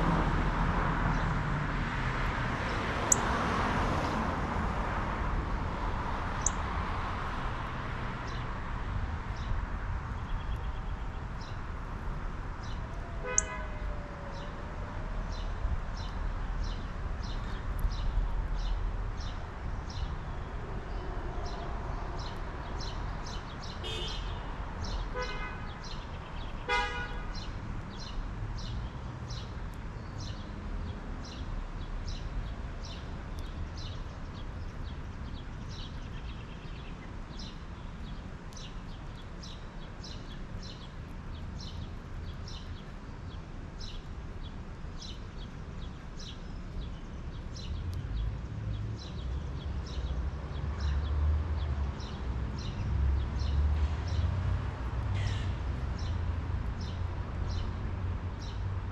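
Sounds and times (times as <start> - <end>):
harsh honk-like bird calls: 13.2 - 13.8, 23.8 - 24.5, 25.1 - 25.8, 26.6 - 27.5.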